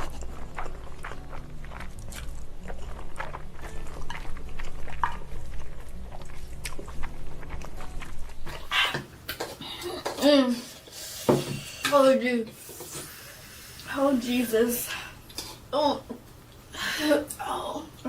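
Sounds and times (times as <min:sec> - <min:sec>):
chewing with wet mouth clicks: 0:00.0 - 0:10.2.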